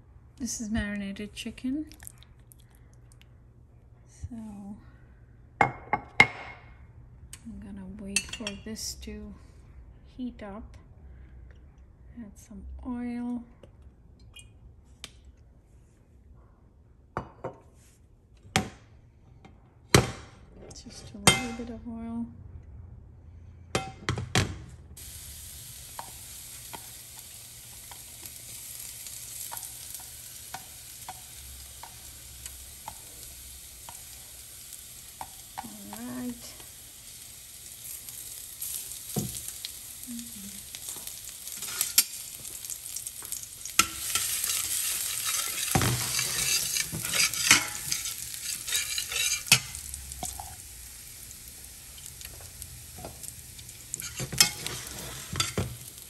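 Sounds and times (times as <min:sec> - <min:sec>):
food sizzling in a pan: 0:25.0 - 0:56.0.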